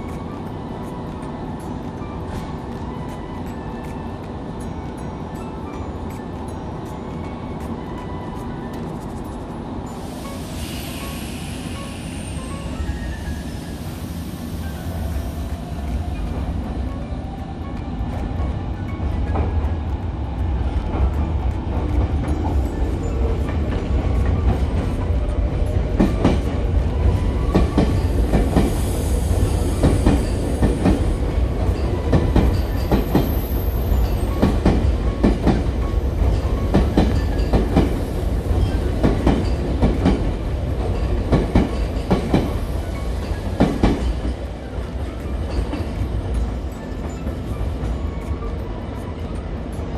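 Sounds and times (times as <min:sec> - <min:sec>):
train low rumble: 0:00.0 - 0:49.9
train wheels clacking over joints: 0:17.6 - 0:49.9.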